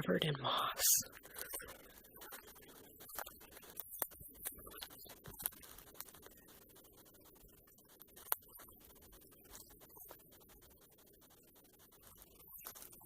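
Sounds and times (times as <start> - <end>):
low hiss: 0.0 - 2.5
faint clicks and ticks: 1.0 - 13.0.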